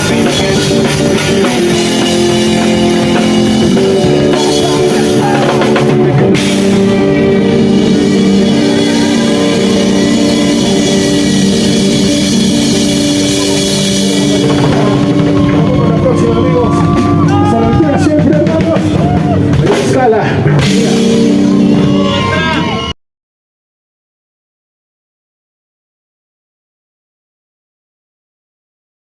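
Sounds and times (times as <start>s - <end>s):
rock band playing: 0.0s - 23.0s.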